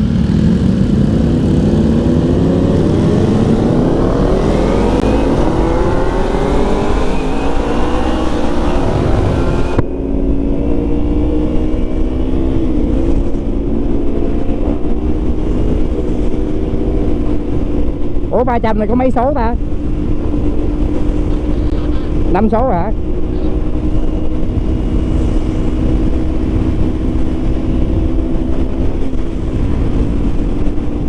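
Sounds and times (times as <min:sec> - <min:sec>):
motorcycle engine accelerating: 0:00.0 - 0:31.0.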